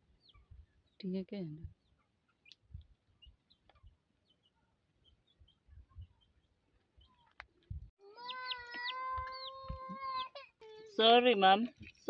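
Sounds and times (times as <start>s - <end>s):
faint bird chirps: 0.0s - 7.4s, 8.0s - 11.0s
small child crying: 8.0s - 10.9s.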